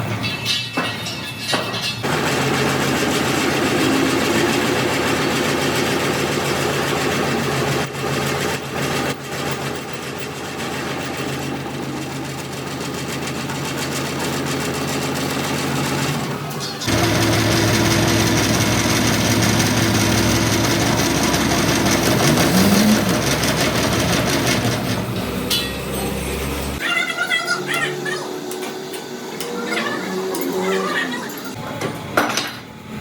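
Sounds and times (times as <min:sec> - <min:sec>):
engine running with low hum: 0:02.1 - 0:26.8.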